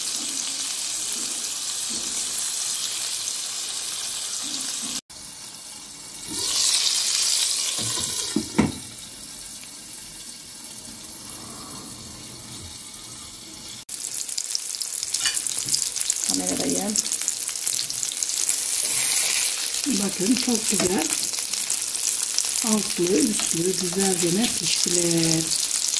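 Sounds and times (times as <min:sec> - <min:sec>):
food sizzling in a pan: 0:00.0 - 0:25.9
knock: 0:07.8 - 0:08.8.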